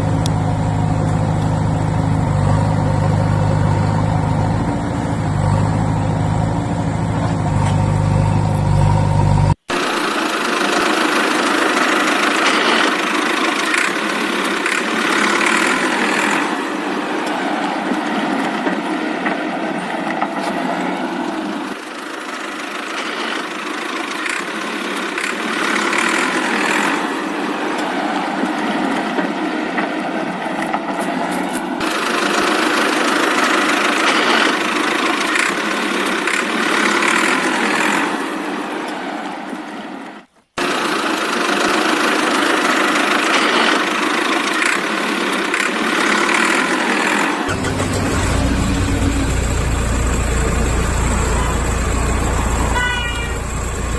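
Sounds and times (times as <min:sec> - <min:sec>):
engine running steadily: 0:00.0 - 0:39.8, 0:40.6 - 0:53.9
thin engine sound: 0:40.6 - 0:53.9.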